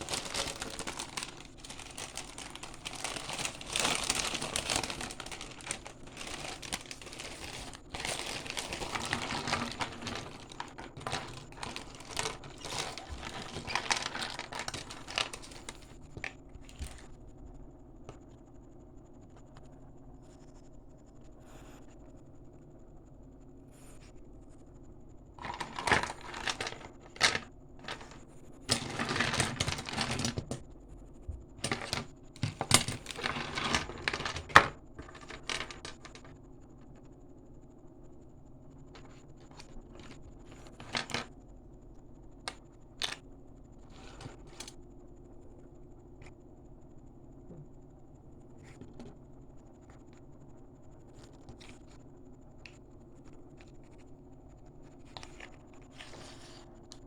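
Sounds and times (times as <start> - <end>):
plastic pieces clicking: 0.0 - 17.0
plastic packaging crinkling: 0.0 - 17.1, 25.4 - 30.6, 31.6 - 36.4, 39.0 - 41.3.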